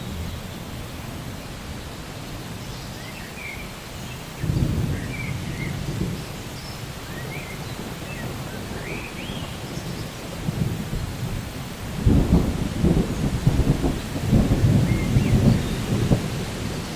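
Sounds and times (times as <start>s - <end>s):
steady rain: 0.0s - 16.9s
low rumble of thunder: 4.3s - 16.9s.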